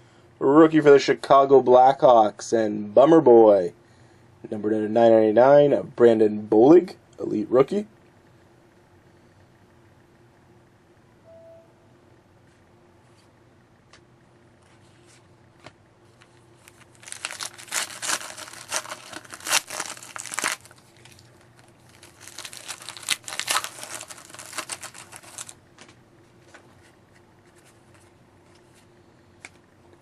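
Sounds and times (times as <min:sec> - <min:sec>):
card pack wrapper crinkling: 0:16.2 - 0:25.6
cards ticking: 0:16.2 - 0:25.6.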